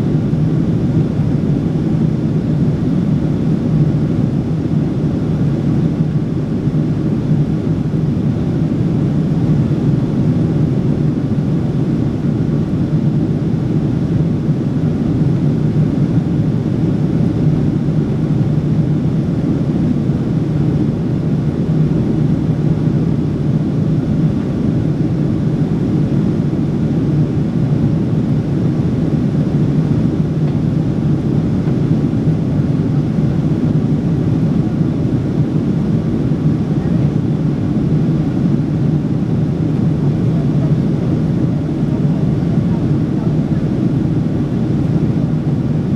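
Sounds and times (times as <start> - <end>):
airplane cabin noise: 0.0 - 45.9.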